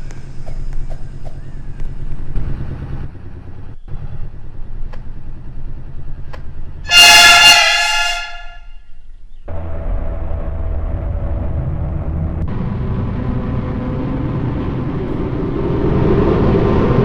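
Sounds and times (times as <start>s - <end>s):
train rumble and hum: 0.0s - 17.0s
loud warning tone: 6.9s - 8.8s.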